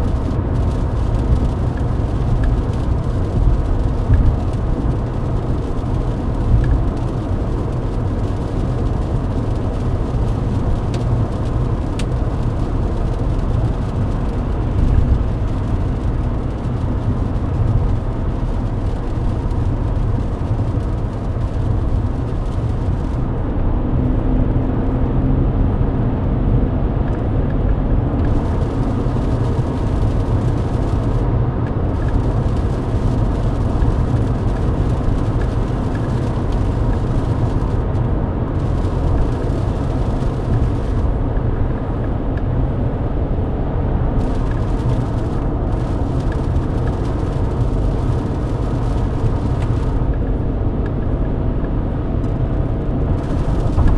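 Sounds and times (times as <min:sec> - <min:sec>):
car road noise on wet road: 0:00.0 - 0:53.9.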